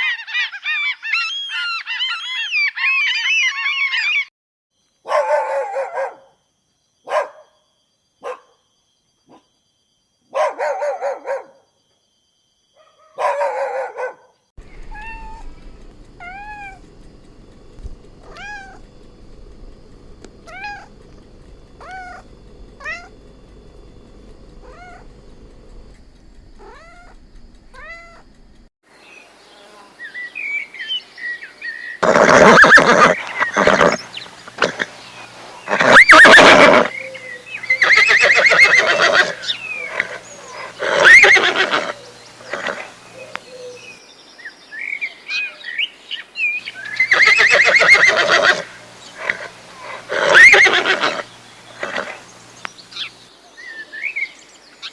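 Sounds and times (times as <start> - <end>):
cats meowing: 14.8 - 15.6, 16.2 - 16.8, 18.1 - 19.1, 21.8 - 23.3, 24.6 - 25.1, 26.6 - 28.3, 40.8 - 41.9, 50.1 - 51.2.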